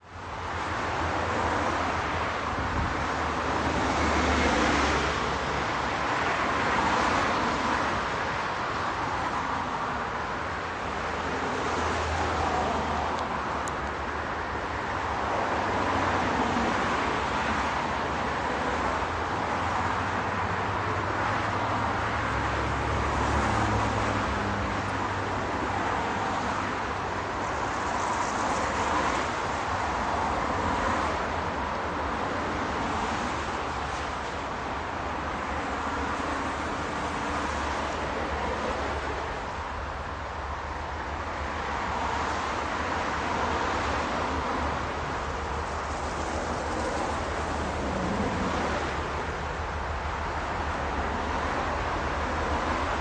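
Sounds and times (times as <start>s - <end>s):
train rushing noise: 15.0s - 53.0s.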